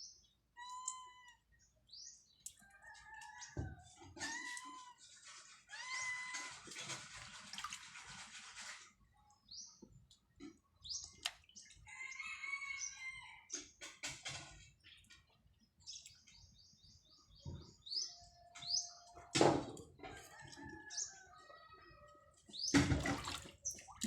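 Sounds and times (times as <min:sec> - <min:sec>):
small birds chirping: 0:00.0 - 0:03.6, 0:09.2 - 0:19.4, 0:20.0 - 0:24.0.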